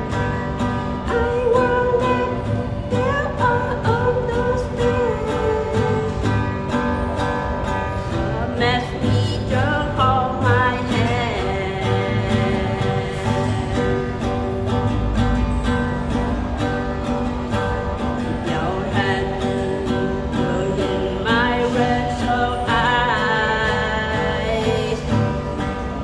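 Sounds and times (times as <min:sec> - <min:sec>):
strummed acoustic guitar: 0:00.0 - 0:26.0
person singing softly: 0:00.8 - 0:06.5, 0:08.1 - 0:15.2.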